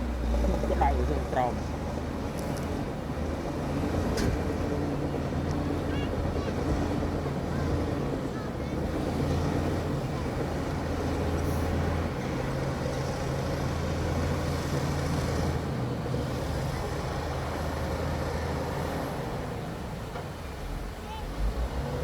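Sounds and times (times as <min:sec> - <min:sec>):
heavy diesel engine droning: 0:00.0 - 0:22.0.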